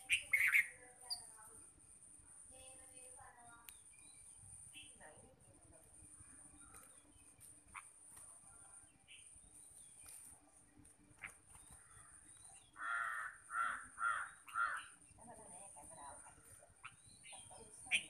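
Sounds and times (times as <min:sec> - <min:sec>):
bird harsh raspy calls: 0:00.0 - 0:01.3, 0:07.7 - 0:08.0, 0:11.2 - 0:15.2, 0:16.0 - 0:18.0.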